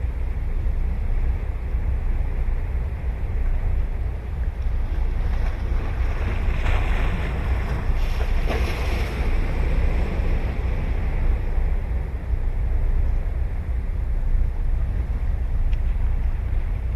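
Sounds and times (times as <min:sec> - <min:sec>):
wind on microphone: 0:00.0 - 0:16.9
waves breaking on beach: 0:04.4 - 0:13.4.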